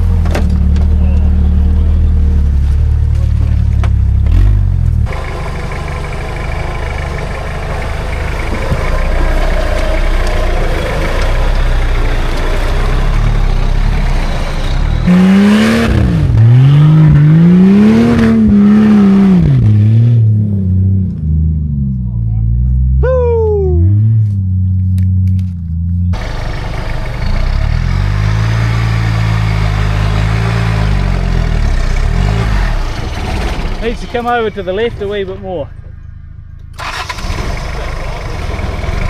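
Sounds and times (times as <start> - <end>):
vehicle engine revving: 0.0 - 23.0, 23.8 - 35.2, 36.7 - 39.0.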